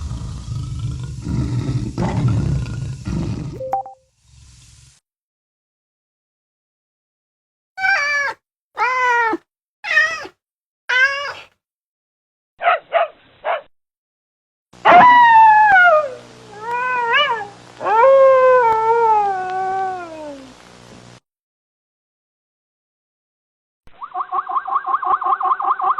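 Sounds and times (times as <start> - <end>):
cat meowing: 7.8 - 11.5.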